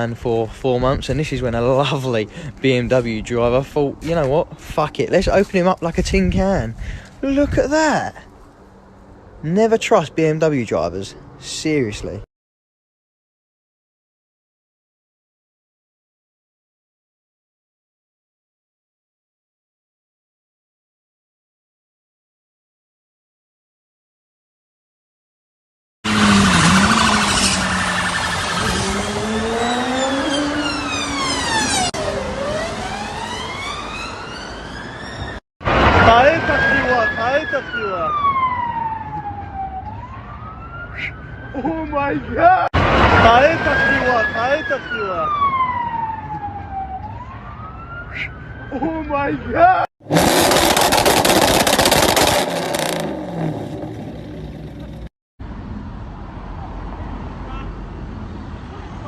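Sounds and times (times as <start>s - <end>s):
road noise: 0.0s - 12.3s, 26.0s - 59.0s
engine note rising: 26.1s - 34.0s, 50.0s - 55.1s
siren wailing: 26.1s - 49.9s
siren yelping: 26.2s - 35.4s, 36.0s - 42.7s, 43.3s - 49.9s.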